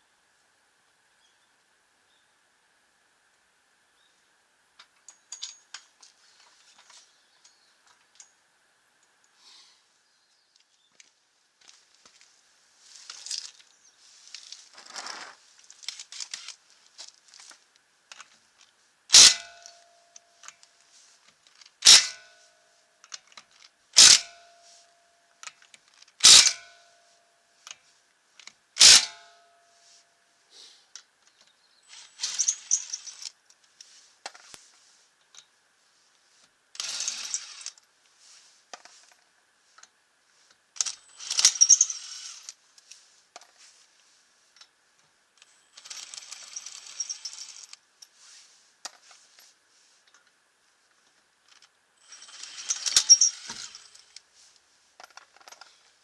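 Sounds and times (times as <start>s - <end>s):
lug nuts clinking on metal: 26.2s - 26.6s
metallic rattling and jangling: 52.0s - 54.2s.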